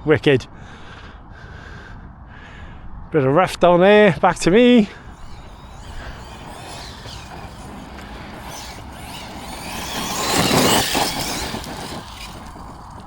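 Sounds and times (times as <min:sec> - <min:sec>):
tyres on rough dirt: 0:04.4 - 0:13.0
toy truck electric motor whine: 0:04.9 - 0:13.0.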